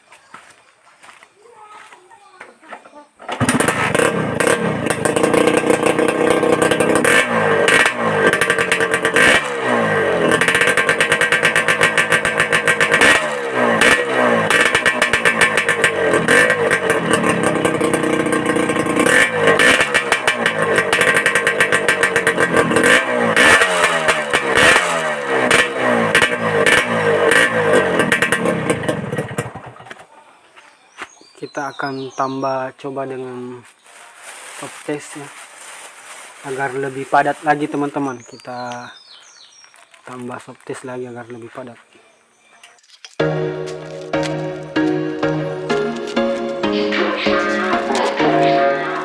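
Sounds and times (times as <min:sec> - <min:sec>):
motorcycle engine revving: 0:03.3 - 0:30.0, 0:35.6 - 0:39.0, 0:43.2 - 0:49.0.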